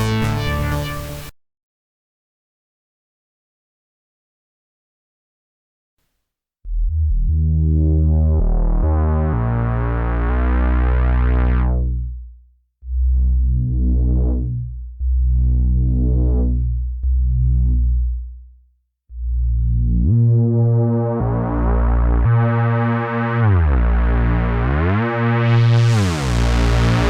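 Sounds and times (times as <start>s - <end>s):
deep synth bass notes: 0.0s - 1.3s, 6.7s - 18.5s, 19.1s - 27.0s.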